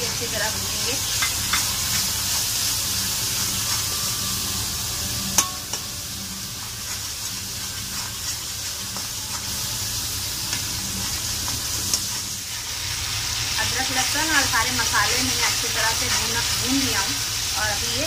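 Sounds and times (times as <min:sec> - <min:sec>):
paste sizzling in hot oil: 0:00.0 - 0:18.0.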